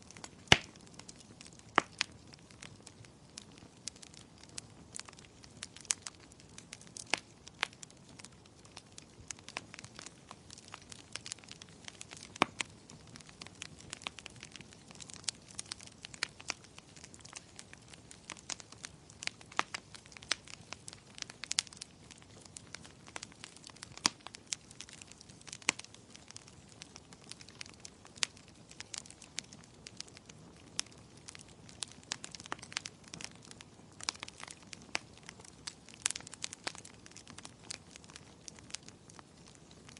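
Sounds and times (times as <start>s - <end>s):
soft rain hiss: 0.0s - 39.9s
wood fire crackling: 0.0s - 39.9s.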